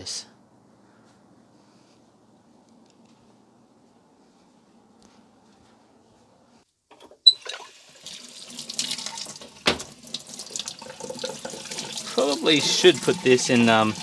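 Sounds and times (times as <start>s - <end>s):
water splashing over filter: 7.3s - 14.0s
knock: 9.7s - 9.9s.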